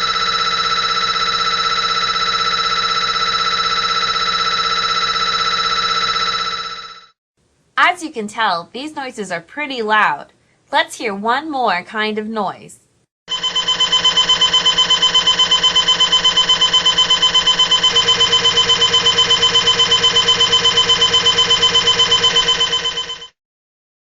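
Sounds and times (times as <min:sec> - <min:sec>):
shrill steady tone: 0:00.0 - 0:07.1, 0:13.3 - 0:23.2
mri scanner rapid pulsing: 0:00.0 - 0:07.2, 0:13.3 - 0:23.4.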